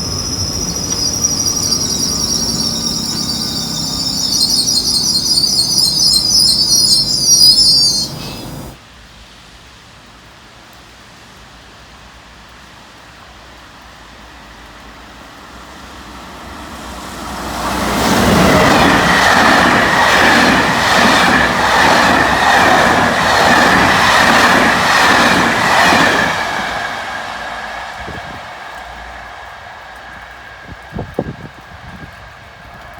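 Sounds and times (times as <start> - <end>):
steady high-pitched tone: 0.0 - 8.8
train wheels clattering: 0.0 - 8.8.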